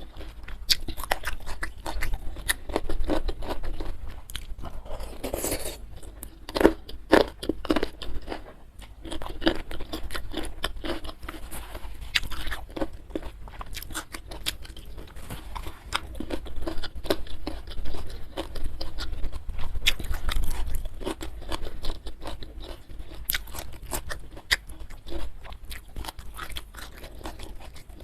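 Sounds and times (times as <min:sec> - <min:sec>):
person chewing crunchy food: 0:00.0 - 0:28.0.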